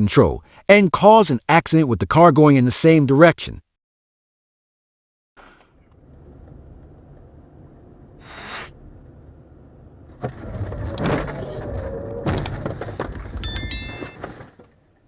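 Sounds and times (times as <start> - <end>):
road and engine rumble: 5.8 - 14.7.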